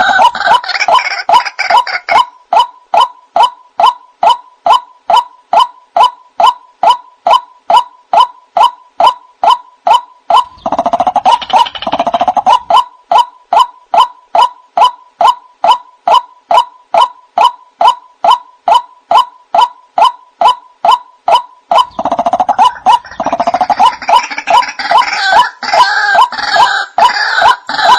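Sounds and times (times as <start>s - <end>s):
harsh overlapping bird calls: 0.0s - 27.9s
waterhen calling: 9.9s - 15.4s, 16.1s - 27.9s.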